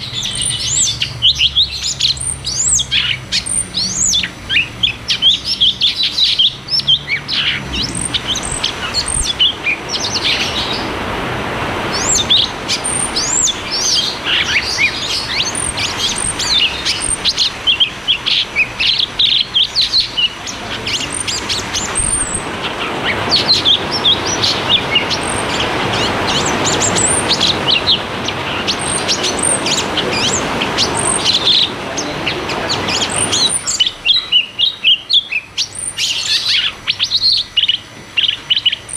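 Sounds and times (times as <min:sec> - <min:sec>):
bird singing rapid chirps: 0:00.0 - 0:11.0, 0:11.8 - 0:38.9.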